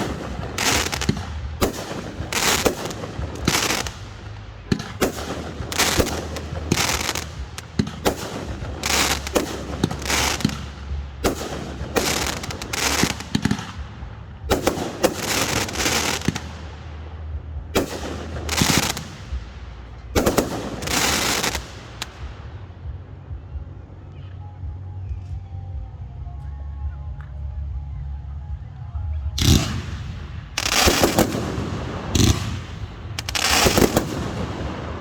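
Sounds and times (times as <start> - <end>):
fireworks crackling hiss: 0.0 - 13.8, 14.5 - 16.6, 17.8 - 19.6, 20.2 - 22.3, 29.4 - 35.0
fireworks bangs: 0.0 - 23.5, 29.4 - 35.0.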